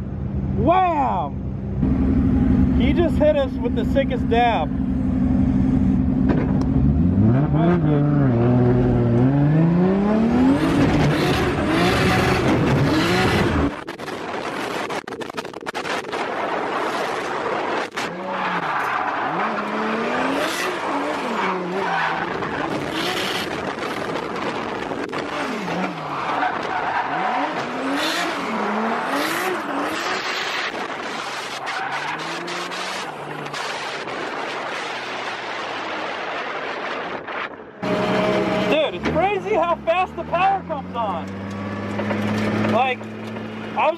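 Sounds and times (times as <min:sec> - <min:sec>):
car engine revving hard: 0:06.8 - 0:13.8, 0:17.8 - 0:34.1, 0:37.8 - 0:39.2.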